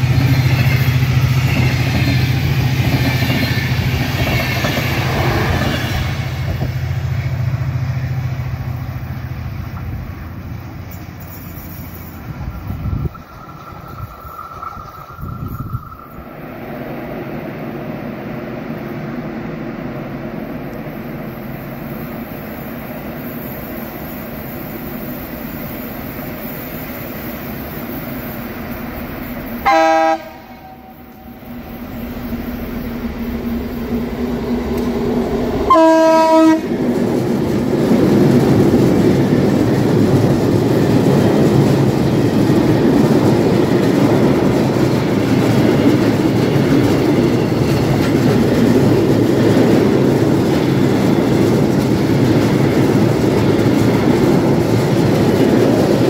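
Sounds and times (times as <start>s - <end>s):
rail clatter: 0.0s - 17.0s, 22.4s - 56.0s
train running rumble: 0.0s - 56.0s
train horn blasts: 29.6s - 31.4s, 35.7s - 36.7s.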